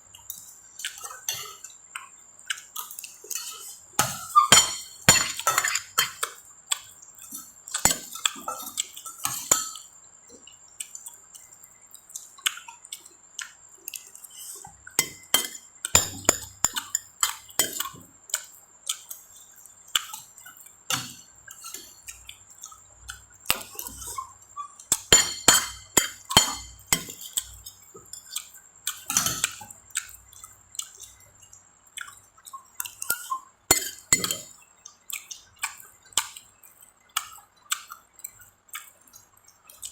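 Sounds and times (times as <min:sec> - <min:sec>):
utensil clinking against dish: 0:03.3 - 0:06.4, 0:07.7 - 0:09.9, 0:15.0 - 0:18.5, 0:23.5 - 0:30.1, 0:32.9 - 0:34.5.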